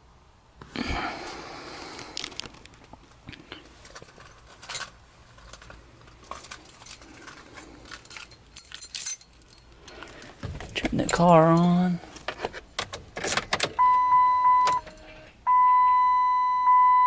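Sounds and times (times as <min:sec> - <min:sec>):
keys jangling: 0:03.8 - 0:12.3.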